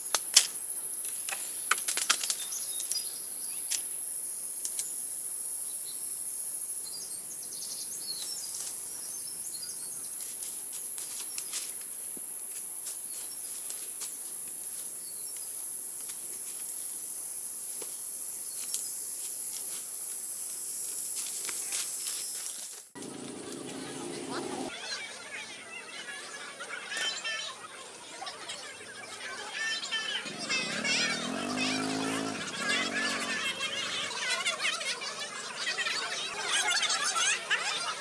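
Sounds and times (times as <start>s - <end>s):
bird chirps: 28.5s - 34.2s
high-pitched insect drone: 29.4s - 34.2s.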